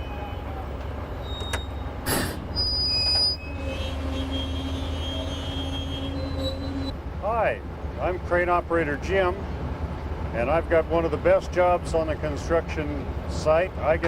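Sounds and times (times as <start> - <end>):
heavy machinery engine rumble: 0.0 - 14.0
high squeal: 1.2 - 7.0.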